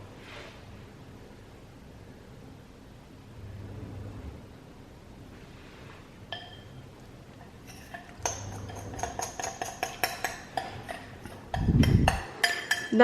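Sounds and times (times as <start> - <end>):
metal spoon clinking on a bowl: 6.3 - 6.8, 7.4 - 13.0.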